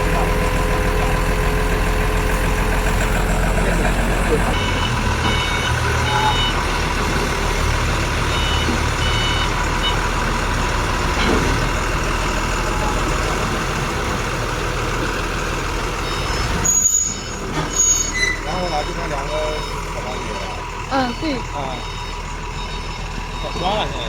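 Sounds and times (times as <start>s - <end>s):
heavy vehicle engine running: 0.0s - 24.0s
reversing alarm beeping: 4.5s - 6.8s, 8.2s - 11.3s, 16.0s - 24.0s.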